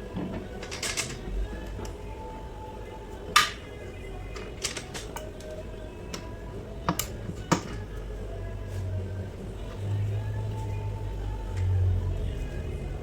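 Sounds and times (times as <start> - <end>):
faint background music: 0.0 - 13.0
metal parts clicking and clinking: 0.2 - 2.0, 4.3 - 5.5.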